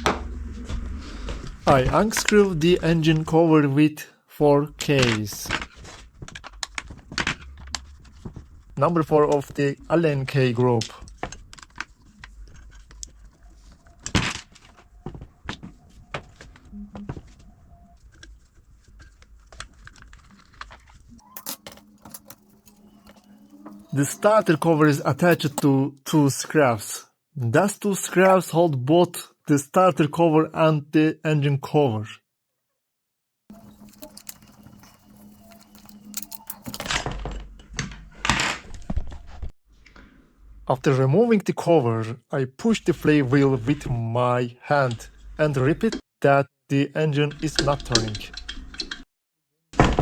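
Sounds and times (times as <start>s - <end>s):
tools and plastic parts clicking: 21.2s - 25.7s, 33.5s - 37.3s.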